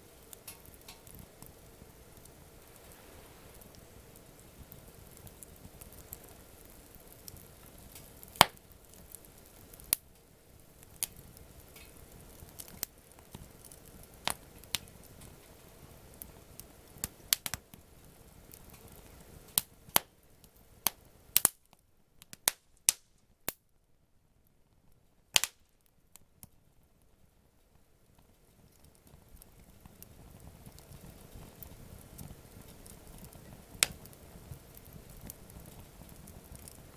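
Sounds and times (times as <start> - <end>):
low rush of fire: 0.0 - 21.5, 27.1 - 36.9
campfire crackling and popping: 0.0 - 23.7, 24.4 - 36.9.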